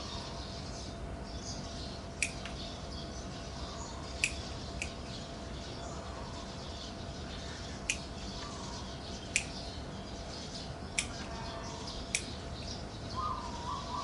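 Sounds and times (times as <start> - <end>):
birds chirping faintly: 0.0 - 14.0
sharp clicks: 2.2 - 2.6, 4.2 - 5.0, 9.3 - 9.6, 10.9 - 11.3, 12.1 - 12.4.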